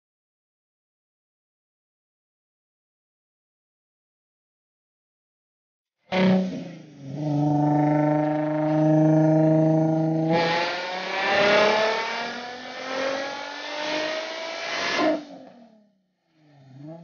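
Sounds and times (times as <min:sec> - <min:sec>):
car engine revving on dyno: 0:06.1 - 0:15.6.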